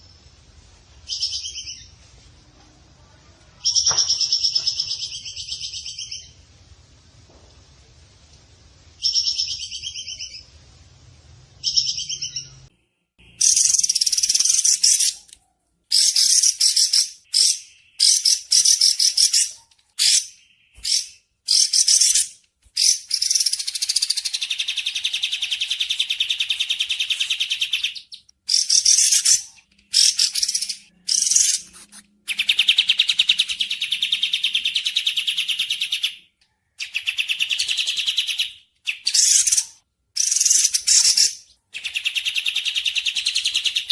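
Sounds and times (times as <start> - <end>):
bird chattering trills: 13.3 - 15.3.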